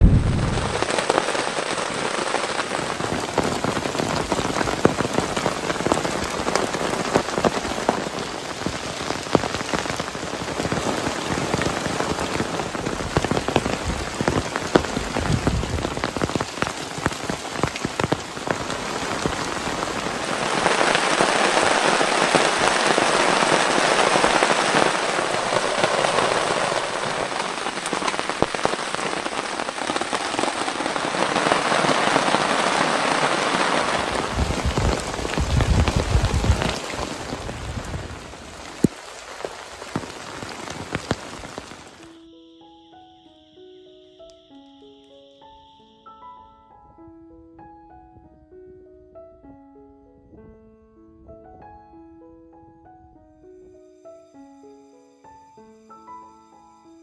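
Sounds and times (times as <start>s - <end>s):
heavy rain falling: 0.0s - 42.2s.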